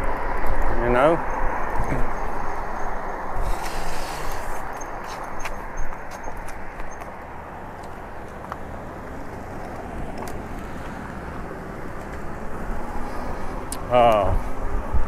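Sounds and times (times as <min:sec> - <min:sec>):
bike tyre noise: 0:00.0 - 0:08.2
rushing wind: 0:00.0 - 0:15.0.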